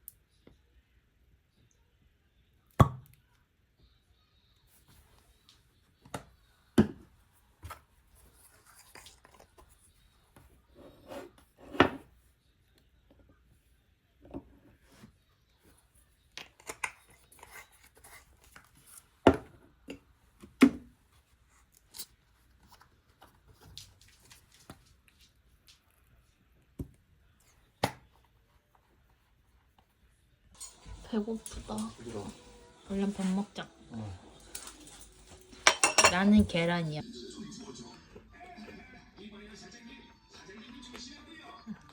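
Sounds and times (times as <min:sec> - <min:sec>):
utensils and dishes clattering: 0:30.6 - 0:33.0, 0:34.3 - 0:36.8.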